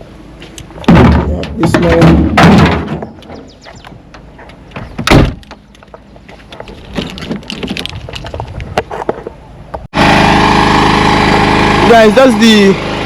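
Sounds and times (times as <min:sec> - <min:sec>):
loud thump: 0:00.8 - 0:03.2, 0:04.8 - 0:05.4.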